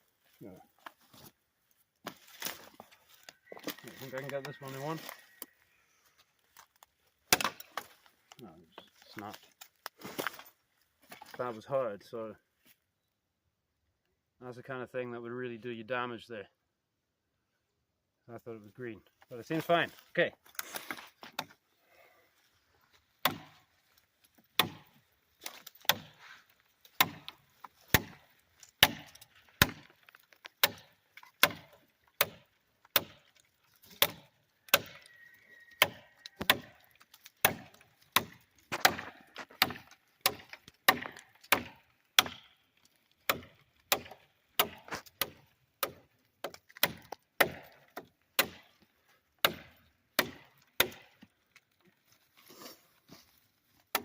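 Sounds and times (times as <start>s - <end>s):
knife chopping branches: 2.0s - 5.2s, 6.6s - 8.4s, 23.2s - 51.7s, 52.4s - 54.0s.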